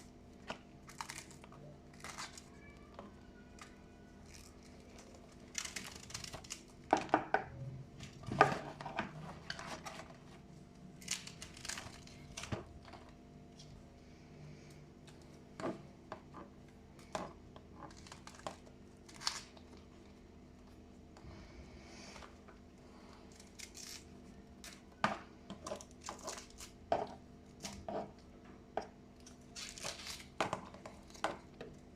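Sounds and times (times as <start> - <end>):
food packaging rustling and crinkling: 8.0 - 13.7, 29.3 - 31.9.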